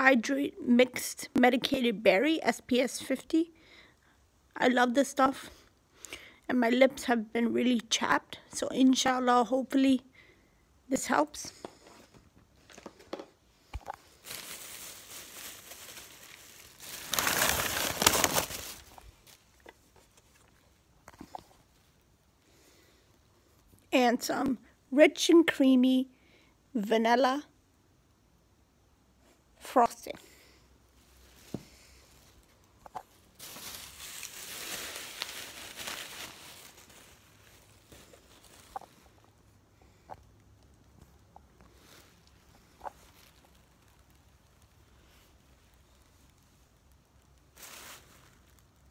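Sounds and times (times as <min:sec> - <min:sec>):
plastic bag crinkling: 0:13.8 - 0:20.6, 0:31.1 - 0:39.4, 0:47.4 - 0:48.9.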